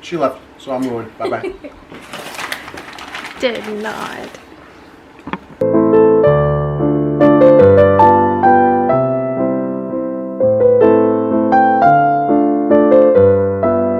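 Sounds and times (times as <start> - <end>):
piano music: 5.6 - 13.9.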